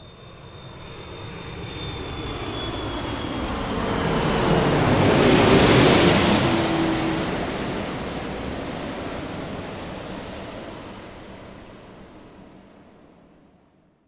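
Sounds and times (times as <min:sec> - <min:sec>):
airliner cabin roar: 0:00.9 - 0:10.8.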